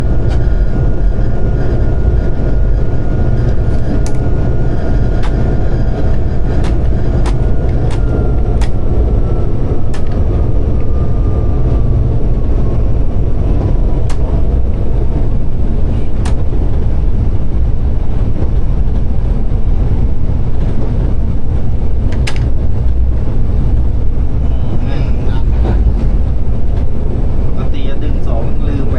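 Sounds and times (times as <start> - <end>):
faint whine sliding down: 0.0 - 18.0
locomotive engine and wheels rumbling: 0.0 - 28.9
sharp clicks: 6.6 - 8.8.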